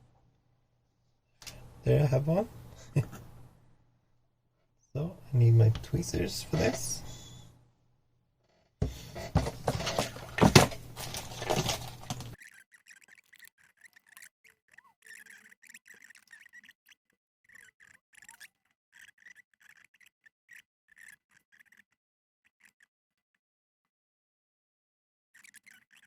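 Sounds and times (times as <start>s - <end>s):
tweezers ticking and scraping: 12.4s - 22.9s.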